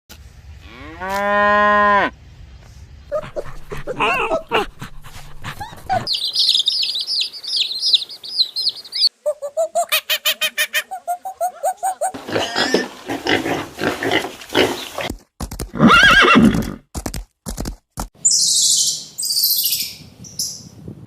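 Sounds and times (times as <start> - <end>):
short chirping calls: 6.1 - 12.2, 18.2 - 20.7
horse whinnying: 15.8 - 16.8.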